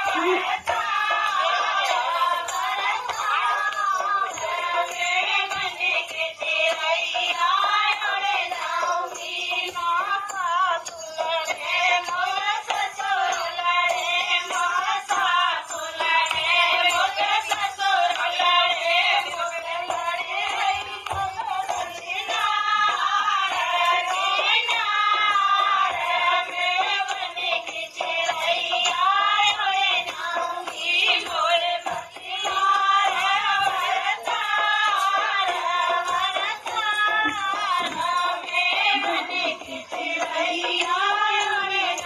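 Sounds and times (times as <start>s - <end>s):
music: 0.0s - 42.0s
woman singing folk song: 0.0s - 42.0s.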